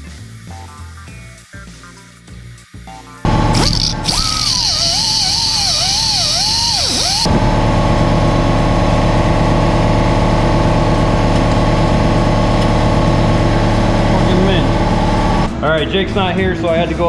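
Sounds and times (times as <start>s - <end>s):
motor running with even pulse: 3.3s - 7.9s.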